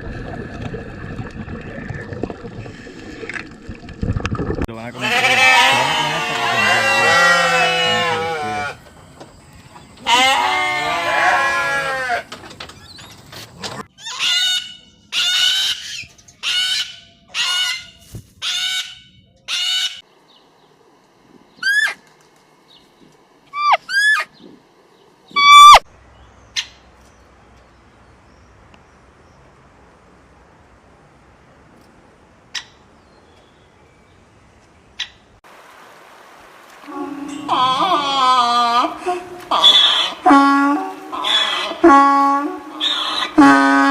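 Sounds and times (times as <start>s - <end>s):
sheep bleating: 5.0s - 8.8s, 10.0s - 12.3s, 36.9s - 43.9s.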